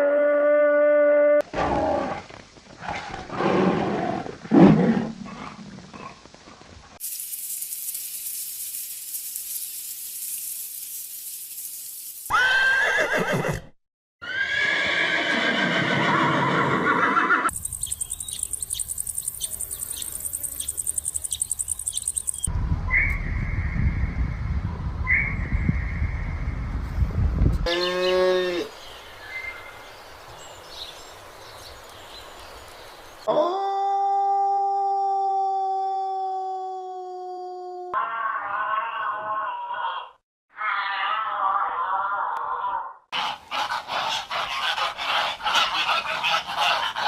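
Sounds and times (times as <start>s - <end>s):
horse whinnying: 12.3s - 17.5s
farm animal sounds: 42.6s - 47.0s.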